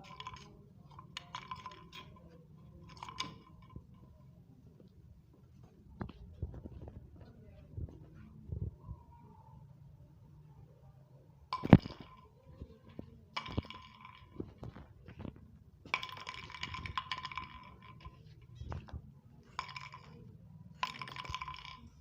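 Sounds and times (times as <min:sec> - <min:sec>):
bottle clinking and rattling: 0:00.0 - 0:04.3, 0:11.5 - 0:22.0.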